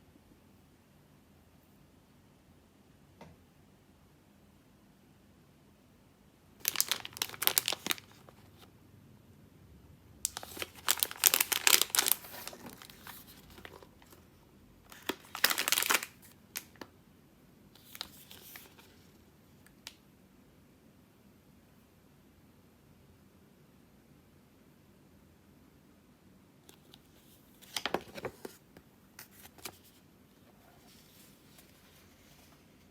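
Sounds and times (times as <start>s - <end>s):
plastic packaging crinkling: 6.6s - 8.6s, 10.2s - 14.2s, 14.9s - 16.8s, 17.8s - 18.9s.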